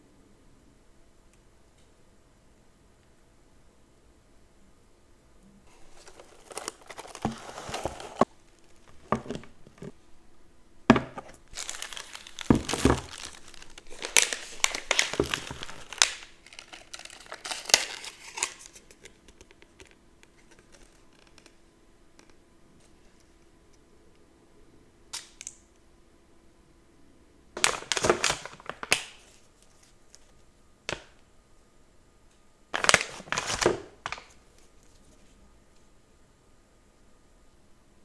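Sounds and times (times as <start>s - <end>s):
packaging crinkling: 5.7s - 10.0s, 10.9s - 21.6s, 27.6s - 30.3s, 32.8s - 35.0s.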